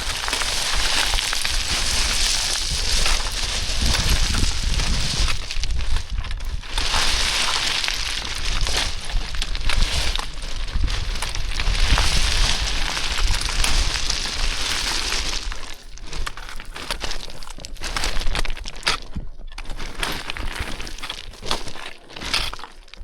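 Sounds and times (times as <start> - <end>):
boots sliding on loose scree: 0.0 - 19.1
wind rumble on microphone: 0.0 - 20.6.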